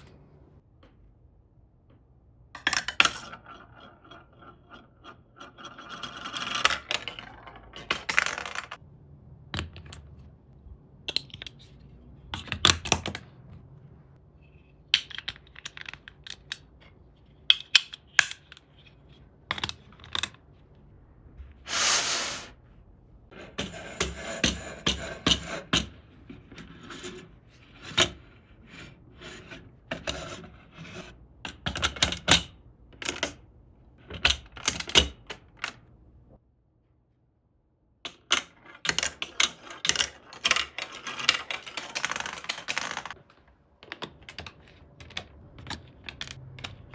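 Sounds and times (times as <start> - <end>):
plastic bricks clicking together: 15.0 - 16.8, 38.1 - 46.9
plastic rubbing and rattling: 38.8 - 43.5.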